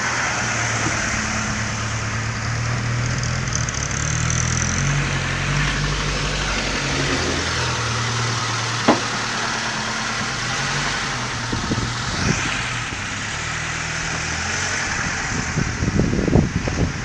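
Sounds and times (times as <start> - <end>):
wind buffeting microphone: 14.8 - 17.0.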